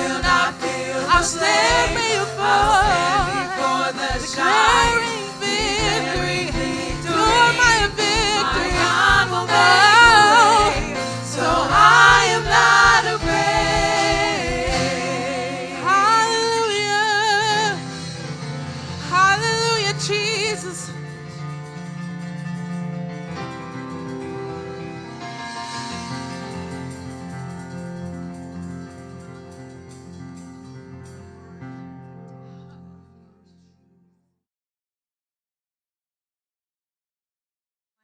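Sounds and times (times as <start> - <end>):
low beat-like hits: 0.0 - 16.0
voices singing with vibrato: 0.0 - 17.8
band playing gospel music: 0.0 - 31.2.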